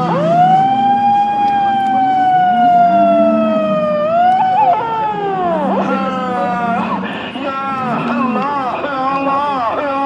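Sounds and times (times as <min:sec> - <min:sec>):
man calling through loudspeaker: 0:05.7 - 0:10.0.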